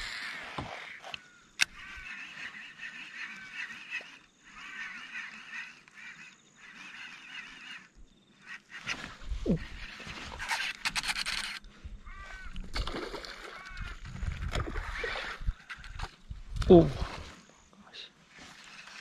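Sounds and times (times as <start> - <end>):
birds calling in quick bursts: 0.0 - 12.6.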